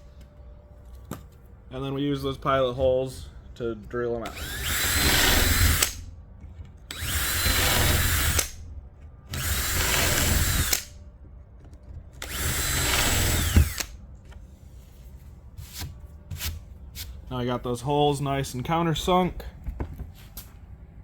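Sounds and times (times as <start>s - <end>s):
power drill boring into wood: 4.3s - 6.0s, 6.9s - 8.6s, 9.3s - 11.0s, 12.2s - 14.0s.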